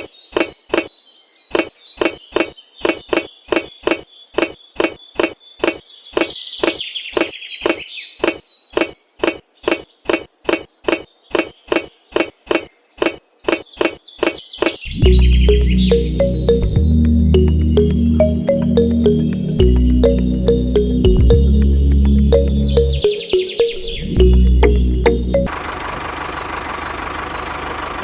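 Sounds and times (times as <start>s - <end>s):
faint bird chirps: 0.0s - 16.9s.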